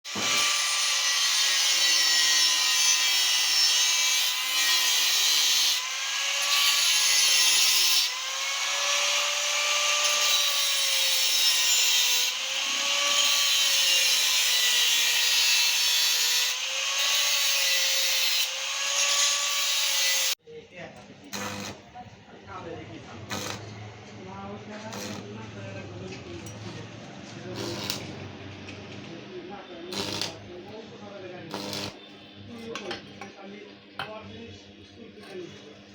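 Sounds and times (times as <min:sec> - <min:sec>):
power tool grinding metal: 0:00.1 - 0:20.4, 0:21.3 - 0:21.8, 0:23.3 - 0:23.8, 0:24.8 - 0:25.4, 0:27.5 - 0:28.3, 0:29.9 - 0:30.5, 0:31.5 - 0:32.0.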